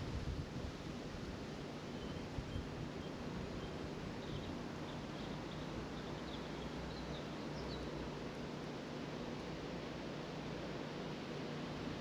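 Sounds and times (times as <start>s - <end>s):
steady outdoor hiss: 0.0s - 12.0s
faint songbird chirping: 1.8s - 8.2s.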